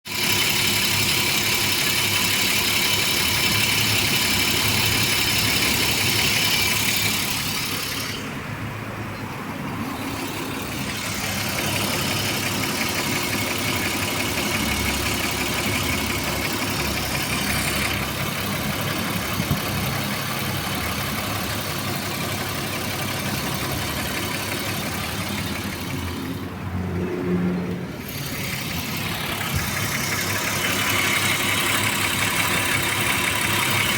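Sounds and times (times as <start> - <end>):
car engine idling: 0.0 - 33.9
hydraulic lifters tapping: 27.6 - 33.9.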